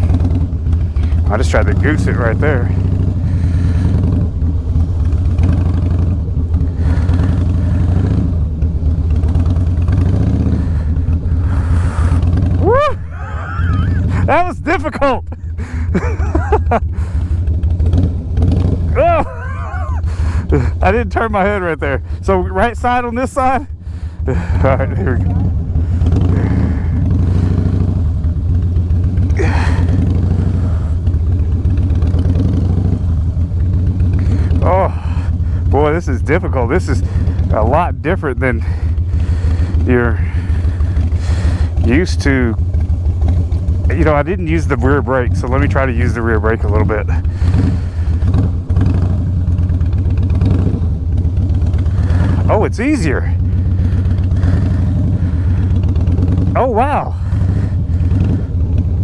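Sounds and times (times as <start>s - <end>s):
motorcycle engine at low revs: 0.0s - 59.0s
breathy vocal sound: 3.1s - 4.2s, 10.4s - 12.4s, 25.8s - 27.8s, 29.4s - 31.0s.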